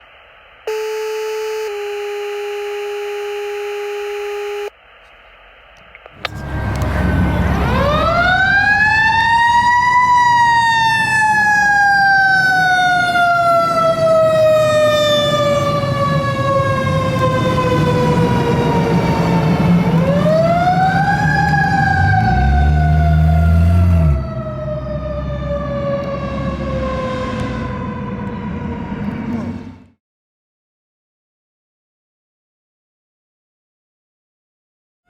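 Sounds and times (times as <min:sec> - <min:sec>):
fire engine siren wailing: 0:00.7 - 0:04.7, 0:06.2 - 0:29.9
two-part electronic tone: 0:00.7 - 0:04.7
truck engine rumble: 0:05.8 - 0:29.9.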